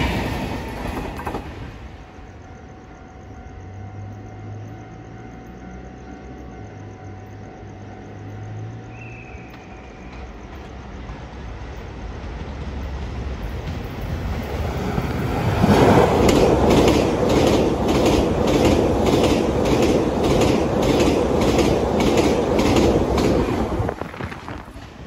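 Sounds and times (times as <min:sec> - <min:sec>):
train wheels clicking: 0:00.0 - 0:02.0, 0:09.3 - 0:25.0
train passing with rumble: 0:00.0 - 0:25.0.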